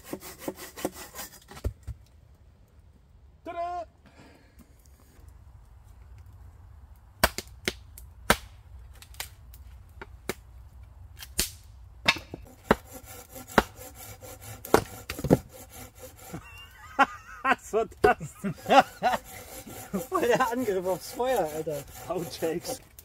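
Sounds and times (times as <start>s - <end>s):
firewood being chopped: 7.1s - 15.6s.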